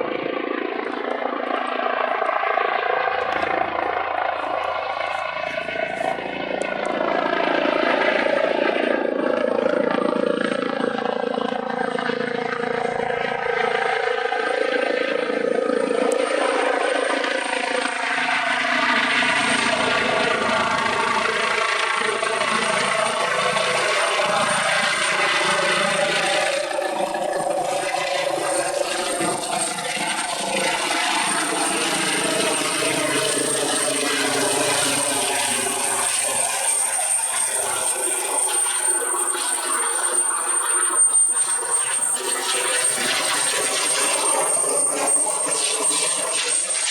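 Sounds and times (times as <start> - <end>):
helicopter engines and rotor: 0.0 - 46.9
high-pitched whine: 18.9 - 46.9.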